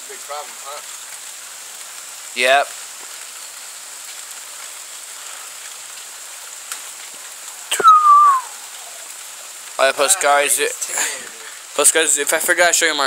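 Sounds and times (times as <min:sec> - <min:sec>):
rain hissing: 0:00.0 - 0:13.0
high tone falling in pitch: 0:07.7 - 0:08.6.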